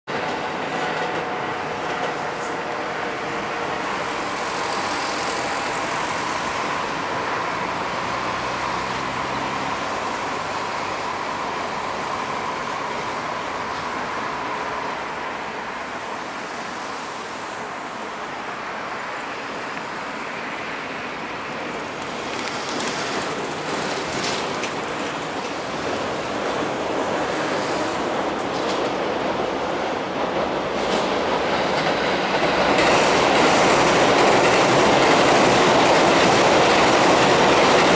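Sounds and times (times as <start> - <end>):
diesel locomotive engine: 0.1 - 37.9
high-speed train hum: 0.1 - 37.9
train wheels clattering on bridge: 22.0 - 37.9.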